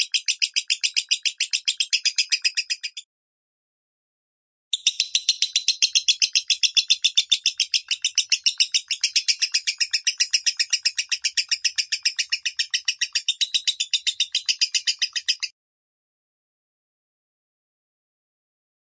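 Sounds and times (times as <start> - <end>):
bird rapid high chirps: 0.0 - 3.0, 4.7 - 15.5.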